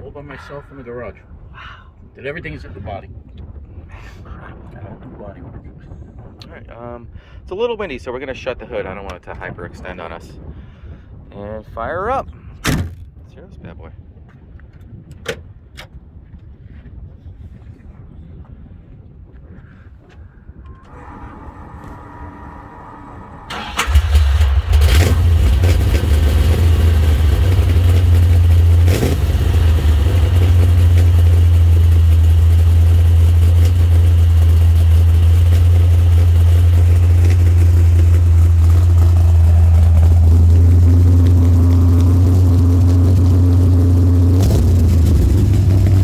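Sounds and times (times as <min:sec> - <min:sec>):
engine starting: 0:20.7 - 0:25.3
engine idling loudly: 0:20.9 - 0:46.0.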